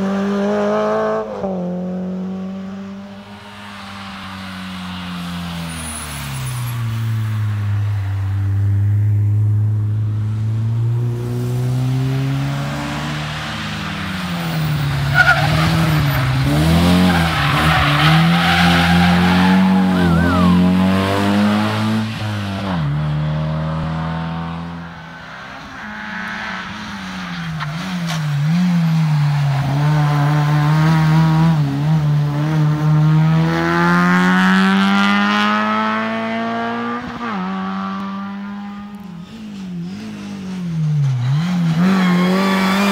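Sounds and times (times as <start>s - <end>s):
rally car engine revving: 9.4s - 42.9s.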